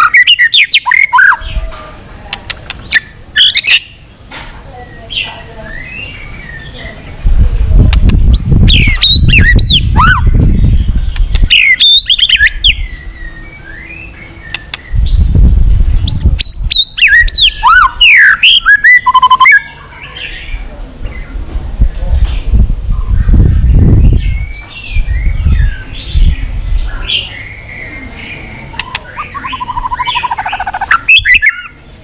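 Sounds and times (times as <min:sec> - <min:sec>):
bird singing whistled phrases: 0:00.0 - 0:01.6, 0:02.9 - 0:04.0, 0:04.8 - 0:06.8, 0:08.4 - 0:15.3, 0:16.1 - 0:19.8, 0:26.8 - 0:31.8.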